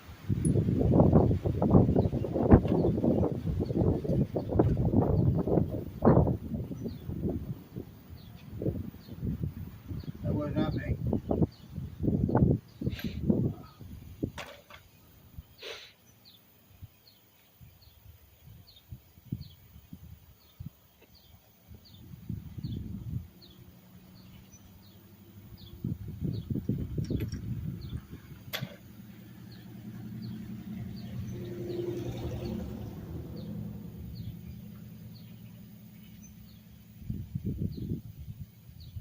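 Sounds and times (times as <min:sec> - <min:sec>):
low knocks and rumbles: 0:03.9 - 0:06.4.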